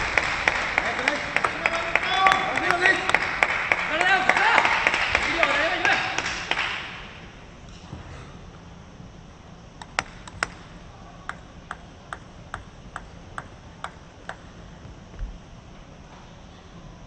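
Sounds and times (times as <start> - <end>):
table tennis ball bouncing: 9.8 - 14.9.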